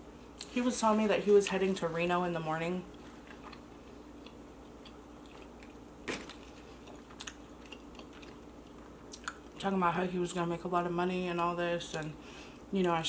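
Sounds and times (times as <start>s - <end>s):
person chewing food: 2.9s - 9.6s
mouth clicks and smacks: 9.1s - 9.5s.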